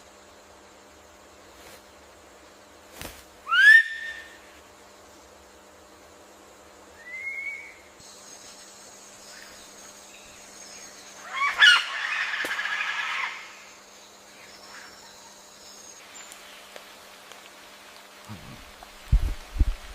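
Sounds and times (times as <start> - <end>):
rising whistled bird note: 3.5 - 4.4, 7.0 - 7.9
harsh rattling bird call: 7.0 - 15.9.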